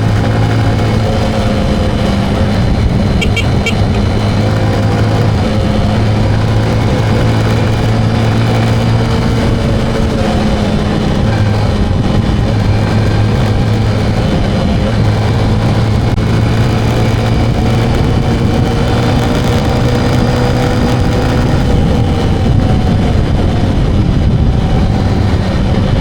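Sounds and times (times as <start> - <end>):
motorcycle engine drone: 0.0 - 26.0
road and wind noise: 0.0 - 26.0
short high-pitched beeps: 3.1 - 4.2.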